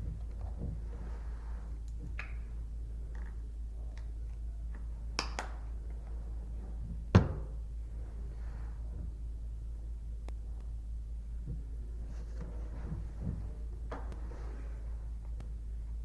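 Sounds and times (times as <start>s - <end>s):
loud thump: 7.1s - 7.6s.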